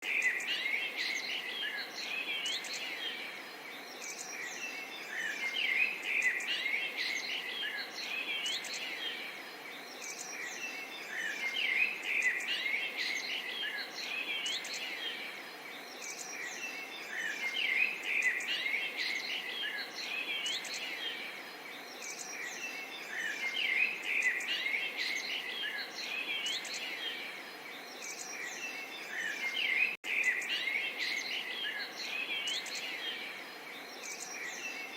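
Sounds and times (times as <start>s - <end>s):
songbirds chirping: 0.0s - 34.9s.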